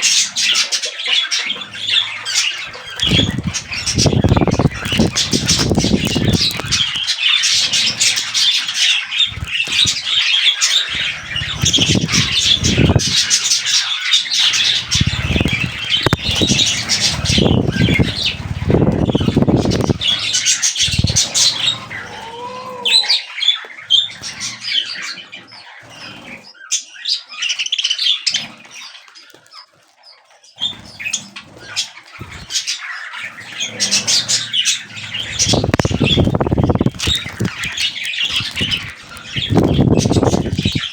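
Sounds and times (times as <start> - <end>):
budgerigars chattering and chirping: 0.0 - 40.9
low fluttering noise: 2.7 - 8.4, 10.9 - 13.6, 14.4 - 22.5, 33.8 - 40.9.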